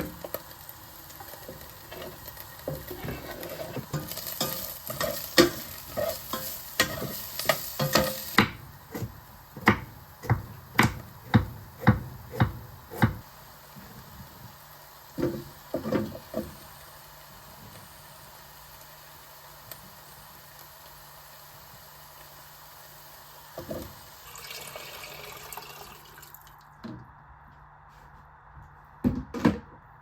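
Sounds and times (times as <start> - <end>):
food sizzling in frying pan: 0.0 - 26.3
utensil scraping pan: 1.2 - 8.4.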